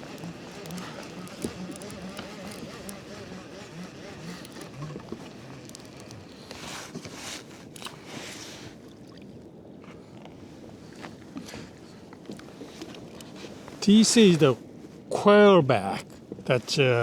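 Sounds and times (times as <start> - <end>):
clicks and knocks on boat: 0.0 - 8.1
water splashing against kayak: 0.0 - 15.0.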